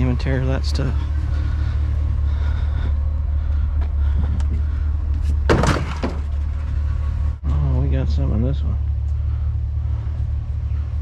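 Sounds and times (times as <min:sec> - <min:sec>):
low rumble: 0:00.0 - 0:11.0
debris rustling clatter: 0:04.5 - 0:07.2.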